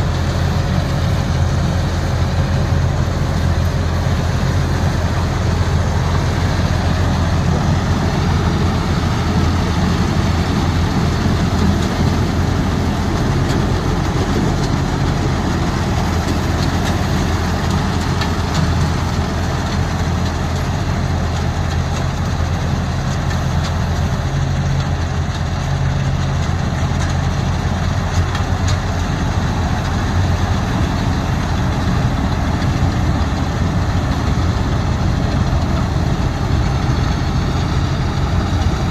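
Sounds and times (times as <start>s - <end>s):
tractor diesel engine droning: 0.0s - 38.9s.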